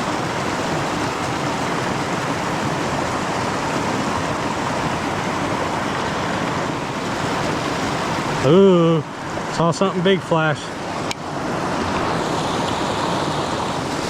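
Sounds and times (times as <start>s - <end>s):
creek water running: 0.0s - 14.0s.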